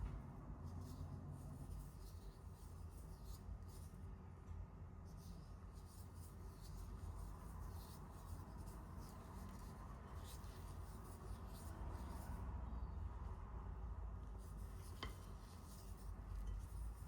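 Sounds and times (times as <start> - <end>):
soft scraping strokes: 14.2 - 17.0.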